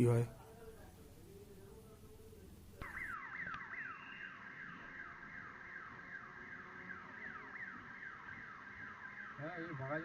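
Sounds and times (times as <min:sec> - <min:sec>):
level crossing warning alarm: 0:02.8 - 0:10.0.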